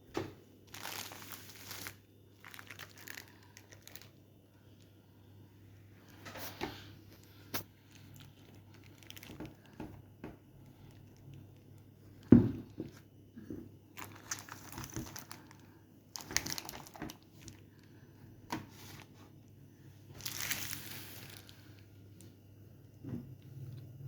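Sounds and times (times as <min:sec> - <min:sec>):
packaging crinkling and rustling: 0:00.6 - 0:04.9, 0:07.3 - 0:13.1, 0:13.9 - 0:19.3, 0:20.1 - 0:21.9.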